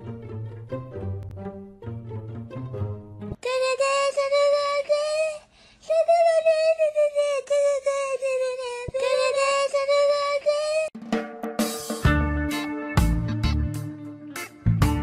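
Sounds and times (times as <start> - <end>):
high singing voice holding a note: 3.4 - 10.9.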